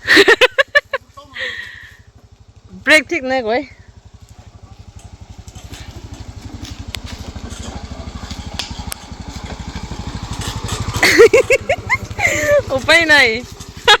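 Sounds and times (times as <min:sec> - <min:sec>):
small motorcycle engine running: 0:00.0 - 0:14.0.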